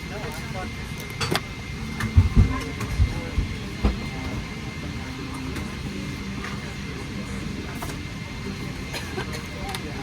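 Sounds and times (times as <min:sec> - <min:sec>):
faint background voices: 0:00.0 - 0:10.0
cabin ventilation rush: 0:01.8 - 0:04.6.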